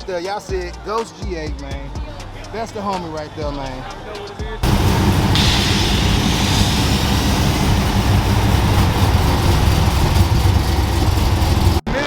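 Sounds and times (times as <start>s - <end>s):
car engine running: 4.6s - 11.9s.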